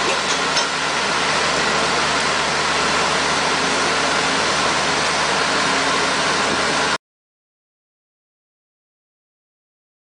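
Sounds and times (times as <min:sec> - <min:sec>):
heavy machine engine running: 0:00.0 - 0:07.0.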